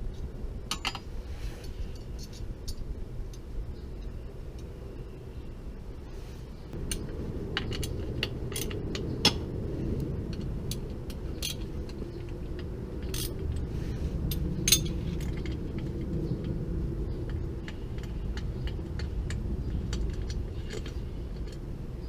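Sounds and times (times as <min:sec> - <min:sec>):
steady low rumble: 0:00.0 - 0:22.0
light metallic clinks: 0:00.1 - 0:04.7, 0:10.3 - 0:13.7.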